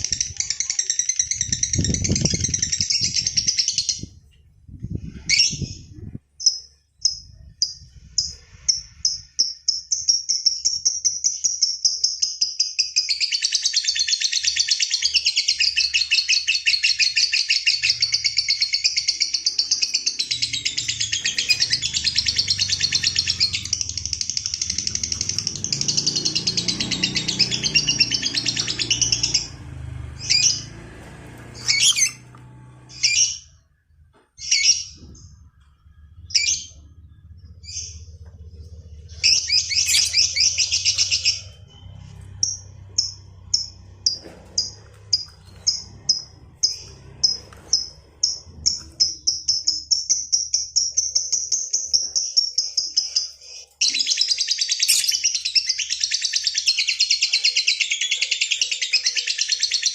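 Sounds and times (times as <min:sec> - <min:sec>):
lovebird chattering trill: 0:31.6 - 0:32.2, 0:39.1 - 0:41.5, 0:42.4 - 0:59.9.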